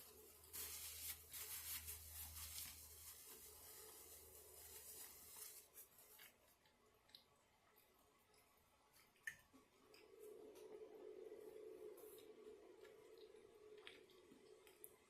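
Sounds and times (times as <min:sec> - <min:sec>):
faint rustling and scraping: 0:00.0 - 0:06.8
low steady hum: 0:00.0 - 0:15.0.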